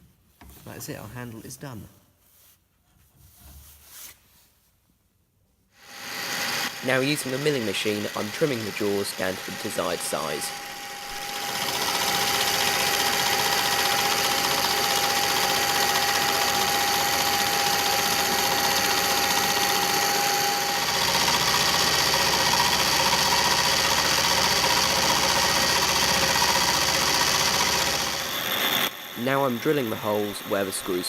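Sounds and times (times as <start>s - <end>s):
milling machine cutting steel: 5.8s - 31.0s.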